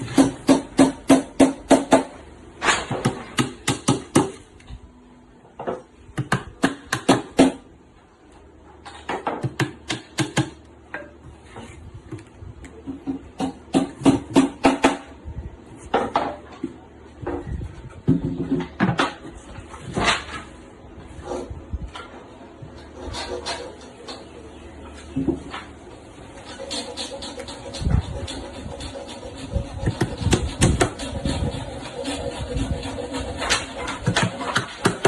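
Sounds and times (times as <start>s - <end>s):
hammer hitting nails: 2.8s - 4.4s, 6.2s - 7.6s, 9.2s - 10.6s.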